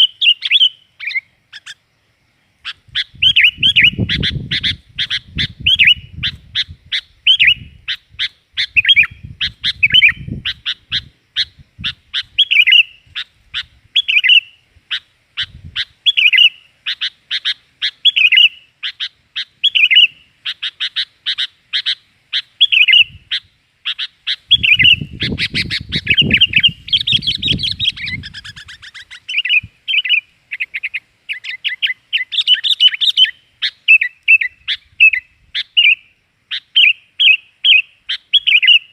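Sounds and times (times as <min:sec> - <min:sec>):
birds chirping sharply: 0:00.0 - 0:38.9.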